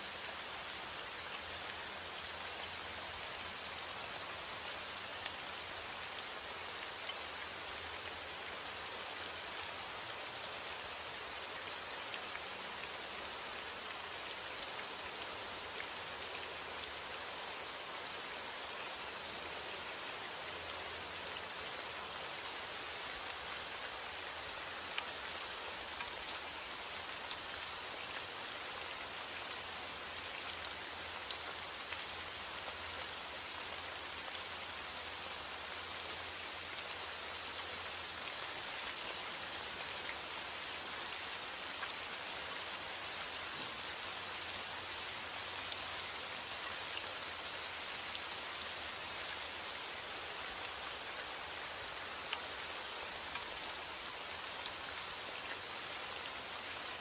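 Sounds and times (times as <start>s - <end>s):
raindrops ticking on a surface: 22.8s - 57.0s.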